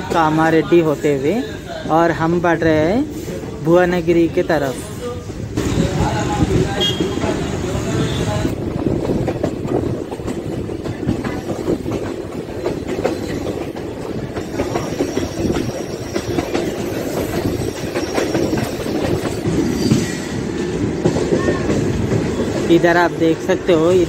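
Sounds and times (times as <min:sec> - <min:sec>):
train wheels rumbling on rail: 0:00.0 - 0:24.0
clickety-clack of wheels: 0:05.5 - 0:24.0.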